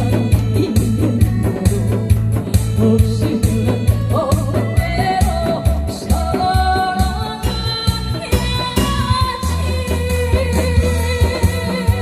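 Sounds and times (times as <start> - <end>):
backing track with drum beat: 0.0 - 12.0
person singing: 0.0 - 12.0.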